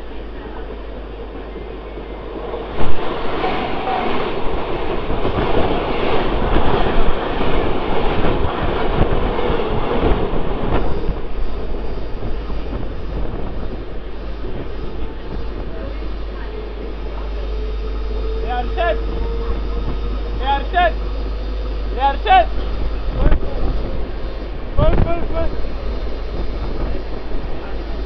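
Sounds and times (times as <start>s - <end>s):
passing train rush: 0.0s - 28.0s
train wheel clatter on rails: 2.3s - 17.4s.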